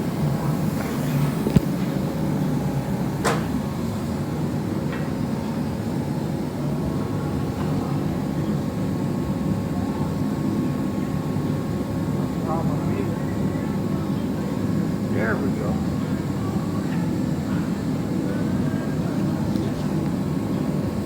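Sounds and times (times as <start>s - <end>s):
machinery humming: 0.0s - 9.9s.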